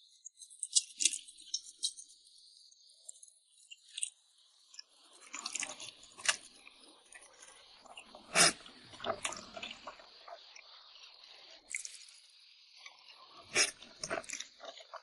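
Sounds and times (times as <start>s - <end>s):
person chewing wetly: 8.4s - 9.4s, 13.5s - 14.9s.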